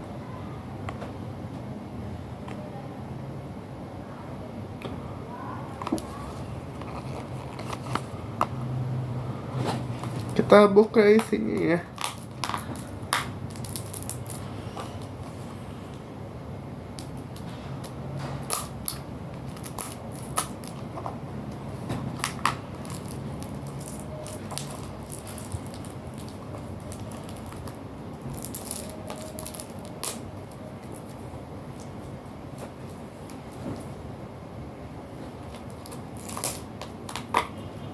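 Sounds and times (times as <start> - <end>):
cardboard and plastic rustling: 5.7 - 8.8, 9.4 - 15.6, 17.2 - 34.1, 35.1 - 37.5.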